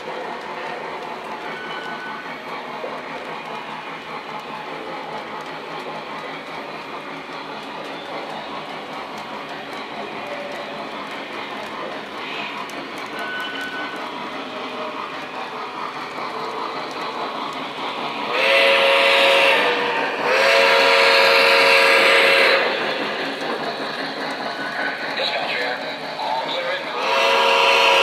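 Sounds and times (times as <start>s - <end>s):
model train running on track: 0.0s - 28.0s
train whistle blasts: 18.3s - 22.7s, 27.0s - 28.0s.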